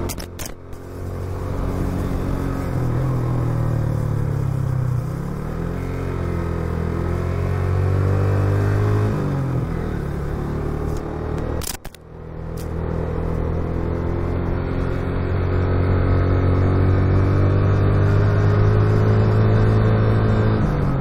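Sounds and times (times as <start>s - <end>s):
motorcycle engine running: 0.0s - 21.0s
sharp clicks: 11.0s - 12.0s.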